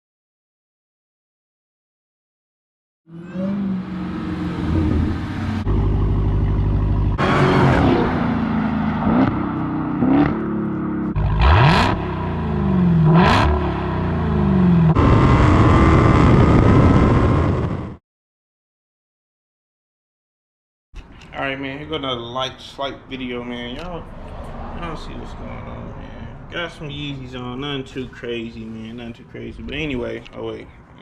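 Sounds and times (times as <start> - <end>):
loud vee eight engine revving: 3.1 - 17.7
car passing by: 23.8 - 27.8.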